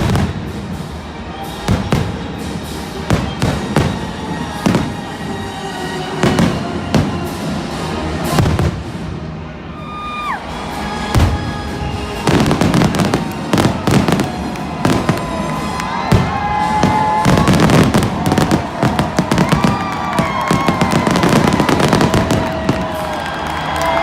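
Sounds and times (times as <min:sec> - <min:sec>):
fireworks bursting: 0:00.0 - 0:09.3, 0:10.6 - 0:24.0.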